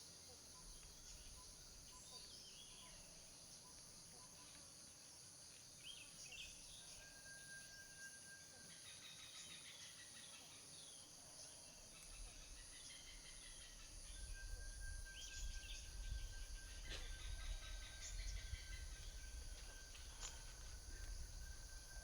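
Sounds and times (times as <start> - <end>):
insect trill: 0.0 - 22.0
bird calls: 12.0 - 22.0.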